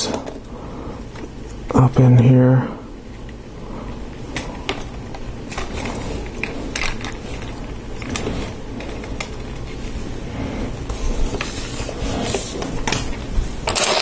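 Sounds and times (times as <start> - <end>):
plastic pieces clicking together: 5.6 - 8.2.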